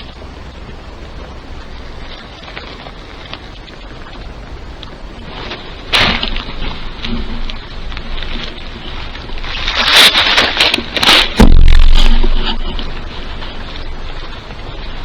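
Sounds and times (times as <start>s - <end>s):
deep rumble: 0.0s - 15.0s
rustling and scraping: 0.0s - 15.0s
loud thump: 11.2s - 13.9s.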